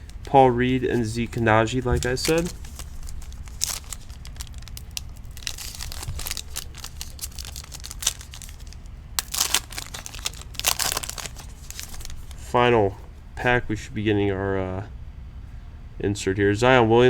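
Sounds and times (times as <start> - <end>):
wrapper crinkling and tearing: 0.0 - 12.6
cards rustling and clicking: 0.0 - 13.1.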